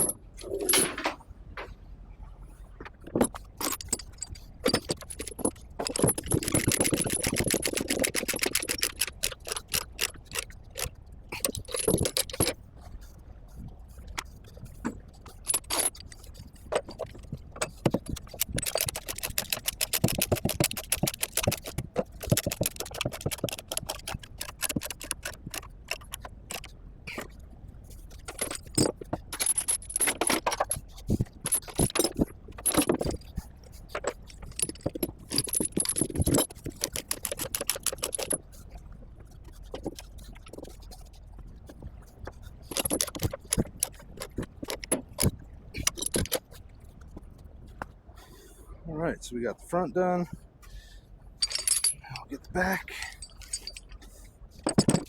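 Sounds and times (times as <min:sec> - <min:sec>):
steel chains clanking: 0:00.0 - 0:01.2, 0:03.1 - 0:12.6, 0:15.4 - 0:16.3, 0:17.7 - 0:26.7, 0:28.2 - 0:30.8, 0:31.4 - 0:33.3, 0:34.3 - 0:38.4, 0:42.7 - 0:46.4, 0:51.4 - 0:54.0, 0:54.6 - 0:55.0.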